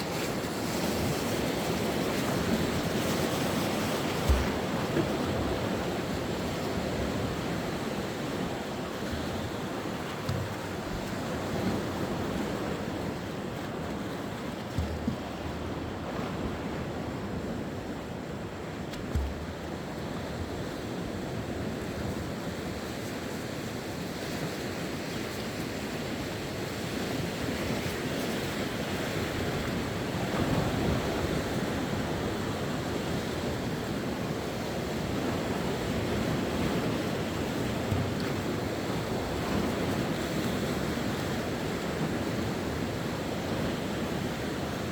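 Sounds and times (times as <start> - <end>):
sea waves washing onto shore: 0.0 - 44.9.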